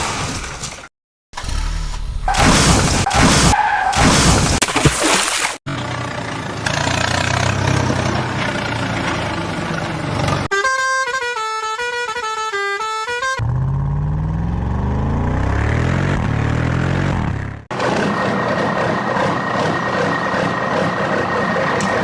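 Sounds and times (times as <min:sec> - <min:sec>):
truck engine revving: 0:05.7 - 0:10.5, 0:13.4 - 0:22.0
vehicle horn playing tune: 0:10.5 - 0:13.5.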